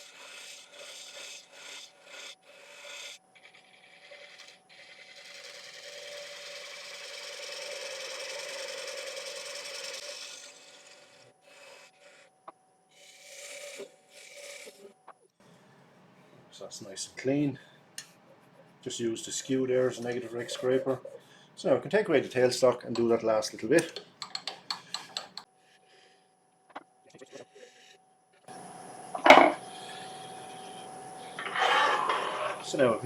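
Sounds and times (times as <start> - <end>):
gouge scraping wood on lathe: 0.0 - 11.3, 18.4 - 21.4, 29.2 - 32.9
faint steady lathe whine: 3.8 - 11.3, 28.5 - 33.0.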